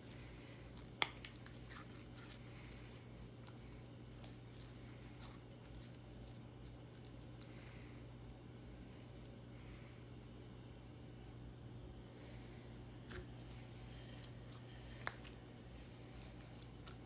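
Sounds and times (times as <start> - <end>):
slime sticky crackles and pops: 0.8 - 2.0.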